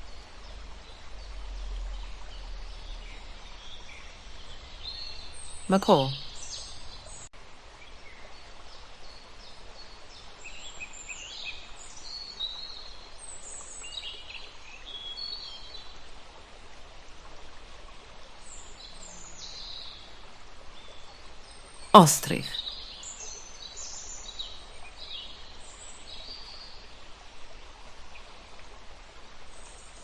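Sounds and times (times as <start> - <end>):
steady outdoor hiss: 0.0 - 4.9.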